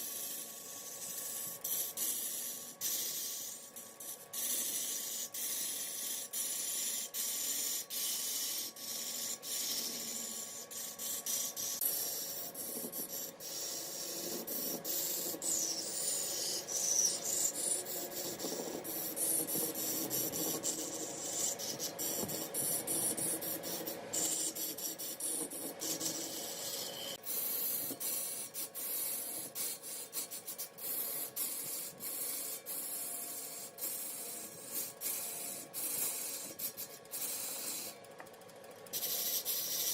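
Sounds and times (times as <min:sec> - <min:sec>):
tool rasping on spinning wood: 0:00.0 - 0:38.1, 0:38.8 - 0:39.9.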